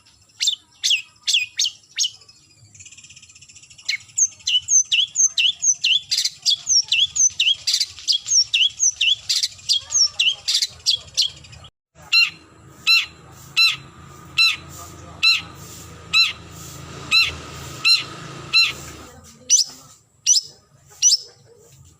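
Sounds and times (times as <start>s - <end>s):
shrike harsh calls: 12.0s - 21.3s.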